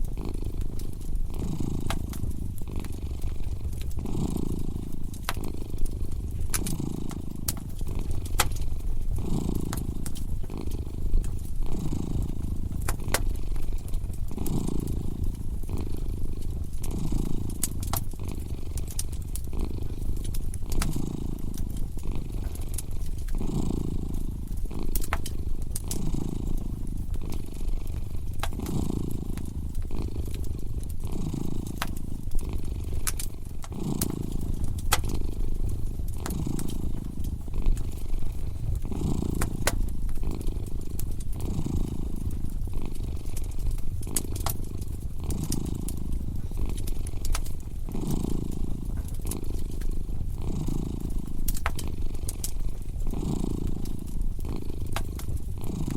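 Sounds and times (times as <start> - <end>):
cat purring: 0.0 - 55.9
wood fire crackling and popping: 0.0 - 55.9.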